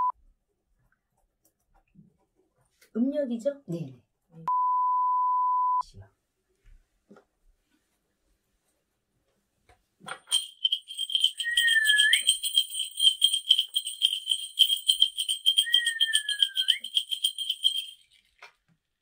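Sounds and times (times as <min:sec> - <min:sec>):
bells shaken rapidly: 0:10.2 - 0:18.4
sliding whistled note: 0:10.3 - 0:17.9.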